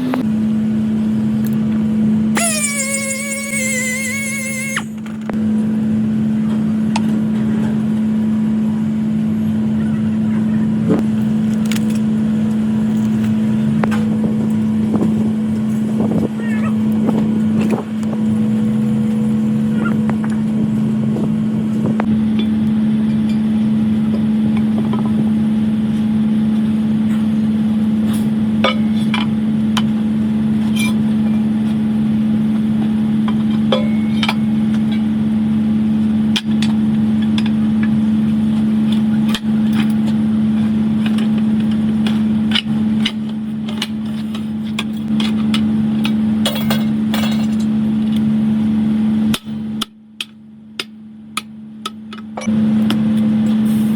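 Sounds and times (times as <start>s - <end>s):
machine humming: 0.0s - 6.3s.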